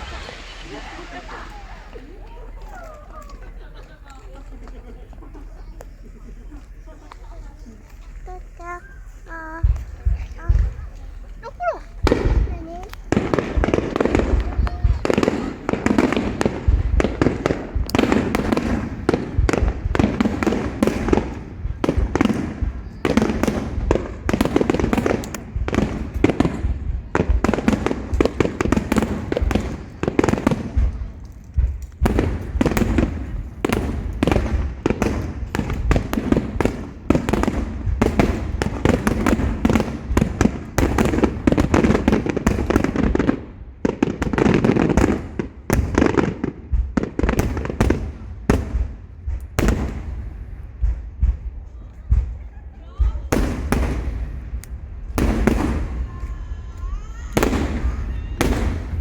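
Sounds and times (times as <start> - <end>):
fireworks booming and cracking: 0.0 - 59.0.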